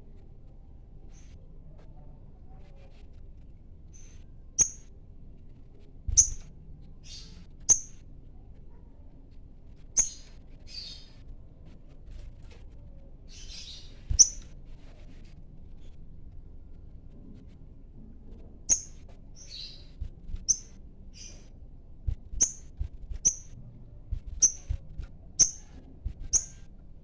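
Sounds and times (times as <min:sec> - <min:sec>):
bird chirping high: 0:04.0 - 0:04.9, 0:06.2 - 0:08.0, 0:10.0 - 0:11.1, 0:13.3 - 0:14.4, 0:18.7 - 0:21.4, 0:22.4 - 0:23.5, 0:24.4 - 0:24.8, 0:26.3 - 0:26.6.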